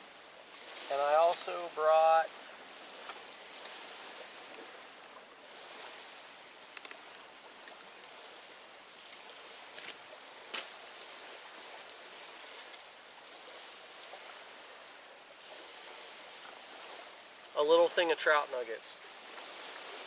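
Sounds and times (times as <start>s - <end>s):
running water: 0.0s - 20.0s
small clicks: 6.7s - 8.2s.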